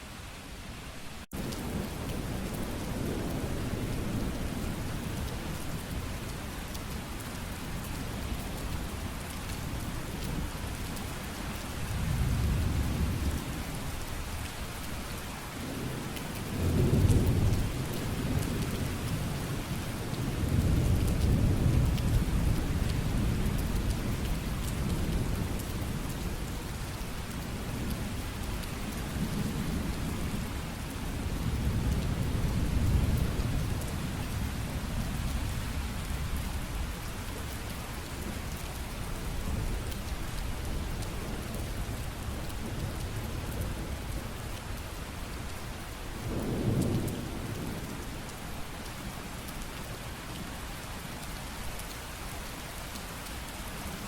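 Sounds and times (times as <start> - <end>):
heavy rain: 0.0 - 54.0
rolling thunder: 46.2 - 48.1.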